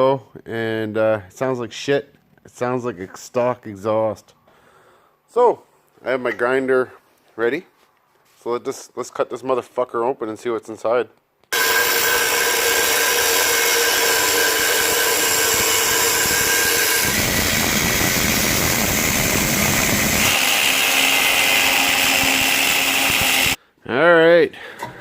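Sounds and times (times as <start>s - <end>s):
angle grinder cutting steel: 11.5s - 23.6s.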